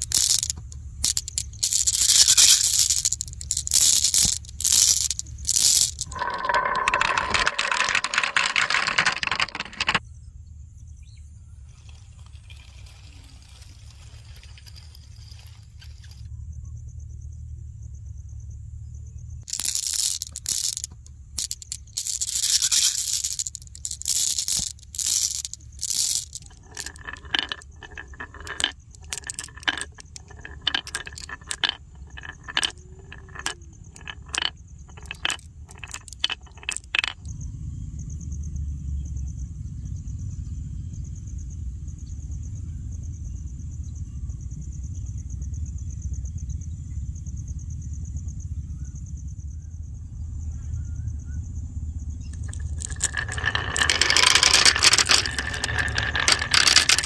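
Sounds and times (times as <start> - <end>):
marbles rattling down wooden run: 0.0 - 10.0, 19.4 - 37.2, 52.3 - 57.0.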